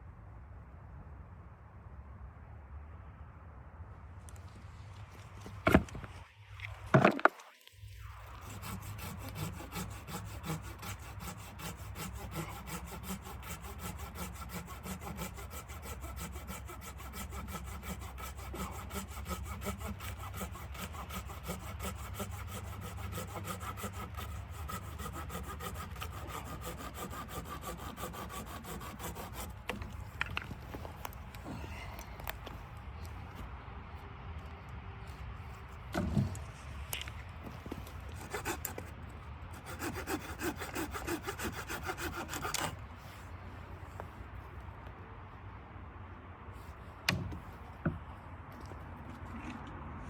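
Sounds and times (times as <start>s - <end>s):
hand saw cutting wood: 5.6s - 5.9s, 8.2s - 30.5s, 37.6s - 42.8s.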